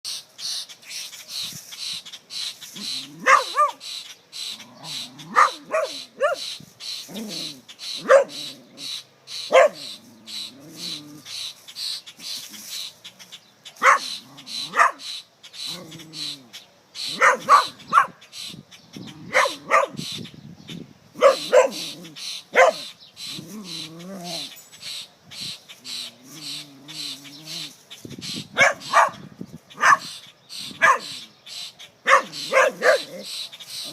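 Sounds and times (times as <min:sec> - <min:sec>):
dog barking: 0:03.2 - 0:03.8, 0:05.3 - 0:06.4, 0:08.0 - 0:08.4, 0:09.5 - 0:09.9, 0:13.8 - 0:14.1, 0:14.7 - 0:15.0, 0:17.1 - 0:18.2, 0:19.3 - 0:20.0, 0:21.2 - 0:21.9, 0:22.5 - 0:22.9, 0:28.6 - 0:29.2, 0:29.8 - 0:30.1, 0:30.8 - 0:31.2, 0:32.0 - 0:33.2
dog whining and yipping: 0:05.3 - 0:06.4, 0:32.1 - 0:33.2.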